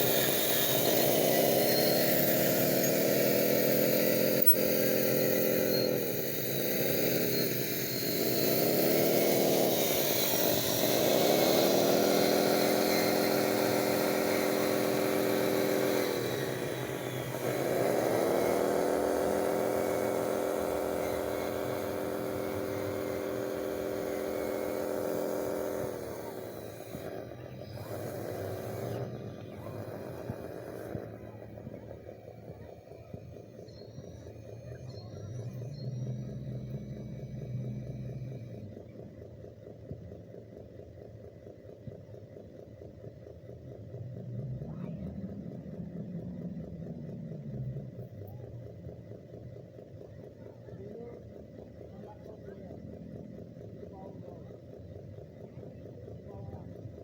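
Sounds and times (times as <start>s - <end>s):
small electric motor whining: 0.0s - 40.8s.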